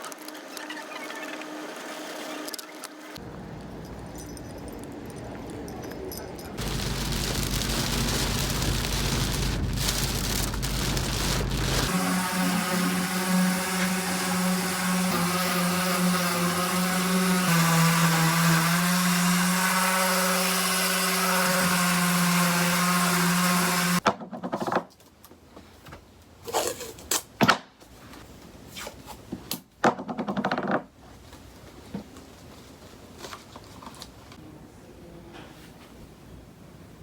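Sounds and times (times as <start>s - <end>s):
power tool motor running: 6.6s - 24.0s.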